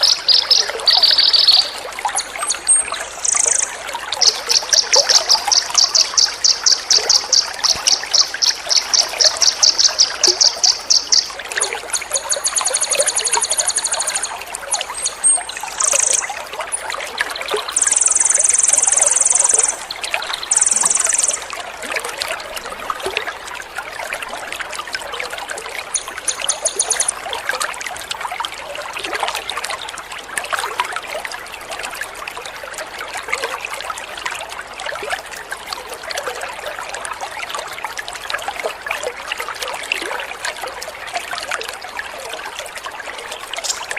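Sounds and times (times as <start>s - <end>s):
songbird calls: 0.0s - 16.4s, 17.7s - 21.5s, 25.9s - 27.1s
water trickling: 0.0s - 43.9s.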